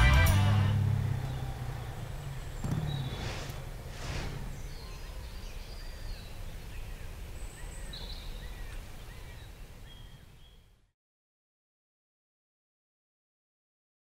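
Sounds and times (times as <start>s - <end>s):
steady low rumble: 0.0s - 7.3s
birds chirping: 0.0s - 10.9s.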